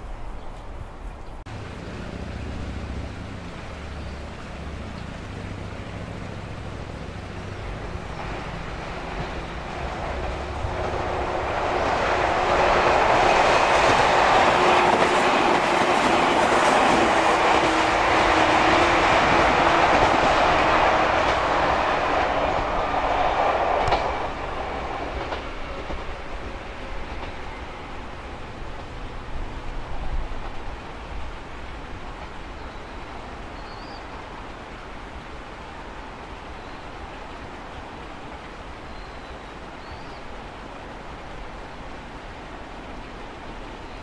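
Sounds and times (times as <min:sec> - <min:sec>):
train wheels running on rails: 0:00.0 - 0:44.0.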